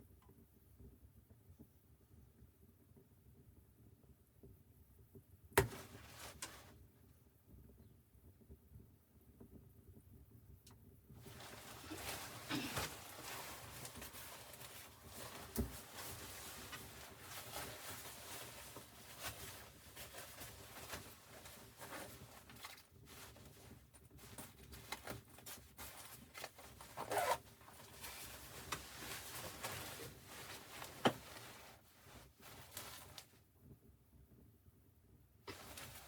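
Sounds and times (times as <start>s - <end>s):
scraping rustling handling noises: 5.6s - 6.8s, 11.2s - 33.4s, 35.5s - 36.0s.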